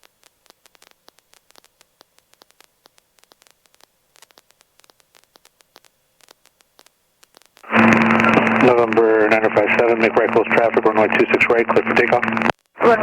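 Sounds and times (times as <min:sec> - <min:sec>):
radio static crackling: 0:04.2 - 0:13.0.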